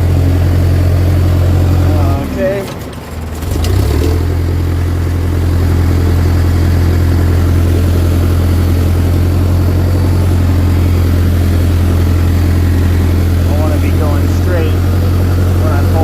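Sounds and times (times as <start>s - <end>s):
bulldozer diesel engine droning: 0.0s - 16.0s.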